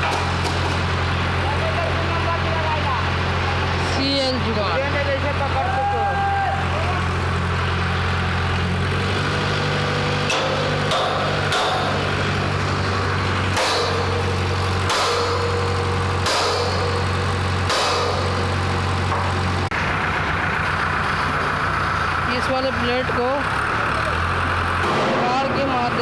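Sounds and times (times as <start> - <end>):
low machine hum: 0.0 - 26.0
sharp metal strikes: 10.2 - 12.3, 13.5 - 19.4, 24.8 - 25.9.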